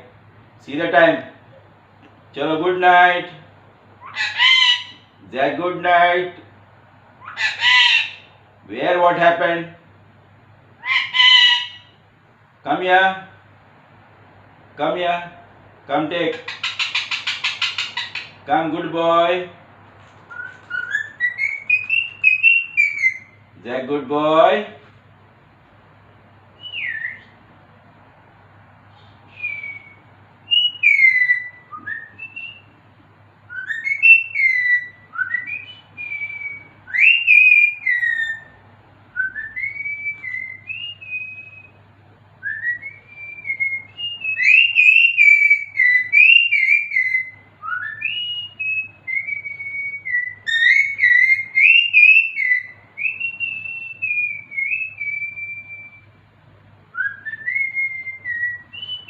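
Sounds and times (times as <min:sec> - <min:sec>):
parrot whistling: 0:04.0 - 0:05.1, 0:07.2 - 0:08.4, 0:10.8 - 0:12.0, 0:16.3 - 0:18.4, 0:20.3 - 0:23.4, 0:26.6 - 0:27.4, 0:29.3 - 0:32.8, 0:33.5 - 0:38.6, 0:39.2 - 0:41.8, 0:42.4 - 0:56.1, 0:56.9 - 0:59.0.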